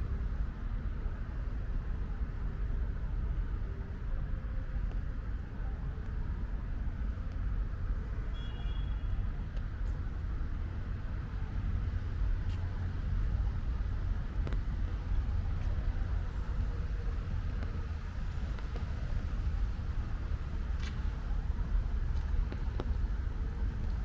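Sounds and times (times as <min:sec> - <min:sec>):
distant road traffic rumble: 0:07.8 - 0:24.0.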